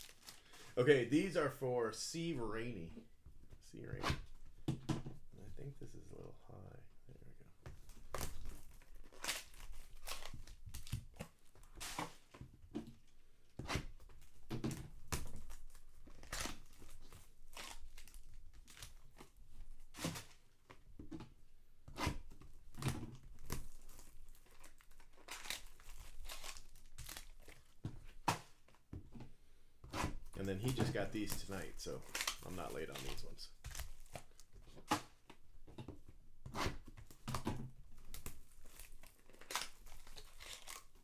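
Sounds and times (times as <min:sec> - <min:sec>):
card wrapping tearing and crinkling: 0:00.0 - 0:01.5, 0:07.8 - 0:12.4, 0:15.1 - 0:20.5, 0:22.0 - 0:28.7, 0:30.0 - 0:35.2, 0:36.6 - 0:41.0.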